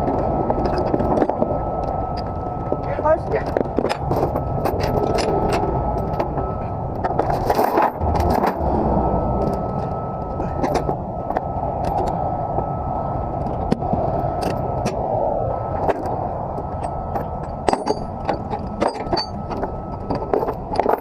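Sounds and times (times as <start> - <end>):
engine rumble with high whine: 0.0 - 21.0
metallic clinks and rattles: 3.4 - 8.6, 16.7 - 21.0.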